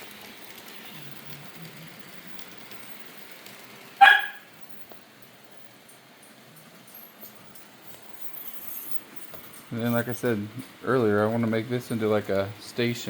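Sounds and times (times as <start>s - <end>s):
model trains running: 0.0s - 13.0s
dog barking: 4.0s - 4.5s.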